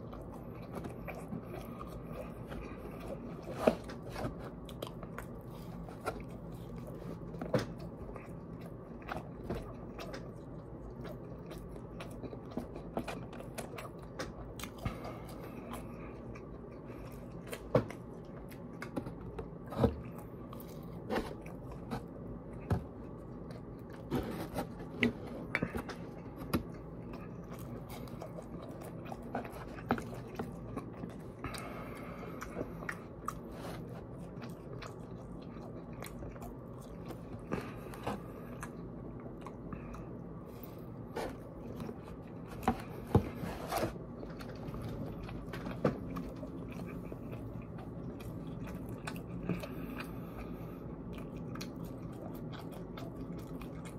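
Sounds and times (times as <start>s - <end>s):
low background hum: 0.0s - 53.9s
person chewing food: 0.0s - 53.9s.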